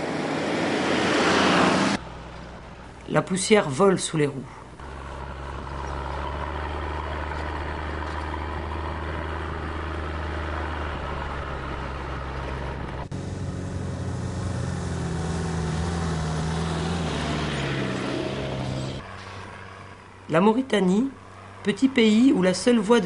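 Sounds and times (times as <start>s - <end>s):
vehicle engines driving on sand: 0.0s - 23.0s
vehicle engine revving: 4.7s - 20.0s.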